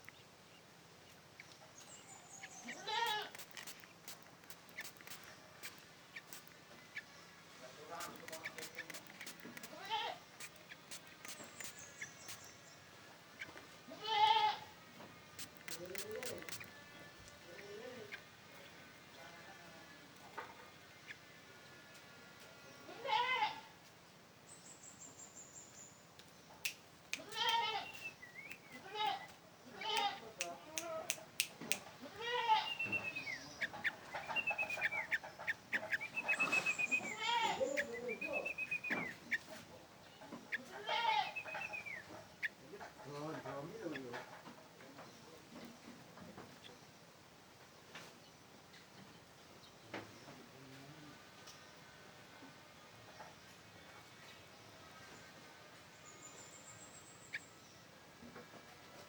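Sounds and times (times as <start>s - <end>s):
bird calls: 0.0s - 13.7s, 15.1s - 18.8s, 24.5s - 31.3s, 32.3s - 47.0s
sharp bird chips: 2.4s - 7.1s, 7.9s - 12.8s, 15.4s - 16.8s, 32.6s - 39.4s
faint ticks: 3.0s - 6.6s
high whistled bird calls: 10.4s - 12.8s, 27.8s - 29.4s, 32.6s - 39.5s.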